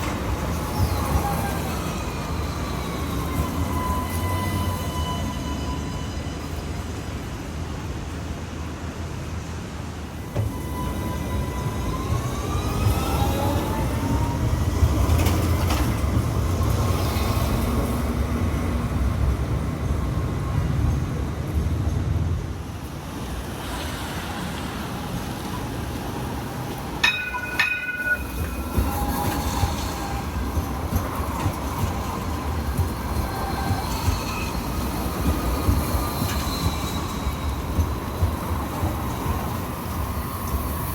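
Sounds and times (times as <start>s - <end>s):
wheels rumbling on track: 9.8s - 40.9s
tram motor whine: 10.1s - 21.2s
ringing steady tones: 27.0s - 29.4s.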